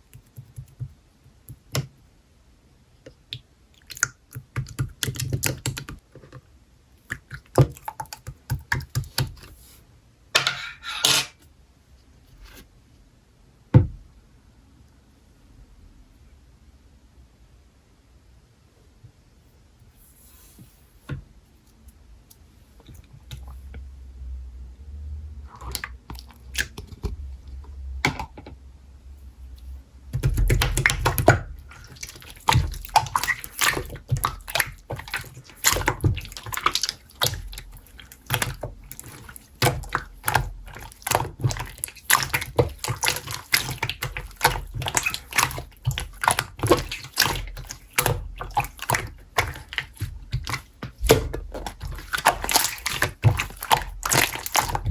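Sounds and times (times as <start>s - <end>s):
slime squished by hand: 30.2s - 54.9s.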